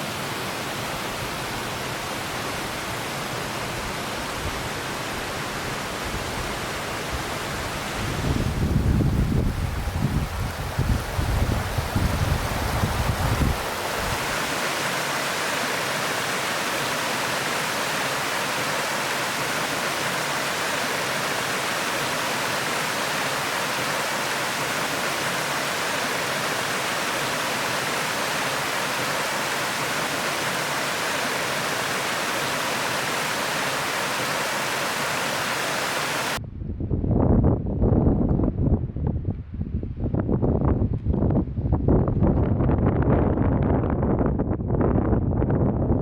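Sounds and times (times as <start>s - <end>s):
wind rumble on microphone: 5.8s - 14.3s, 36.4s - 46.0s
water pouring over waterfall: 8.0s - 36.4s.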